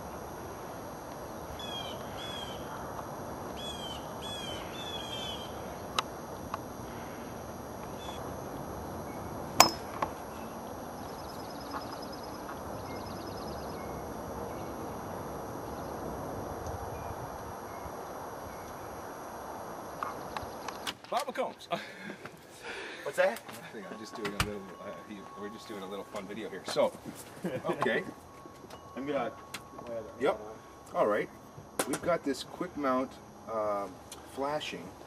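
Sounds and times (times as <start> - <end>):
bird chirping: 1.5 - 2.7, 3.6 - 5.9, 7.8 - 8.2, 9.0 - 16.0
sharp knocks: 9.6 - 10.1.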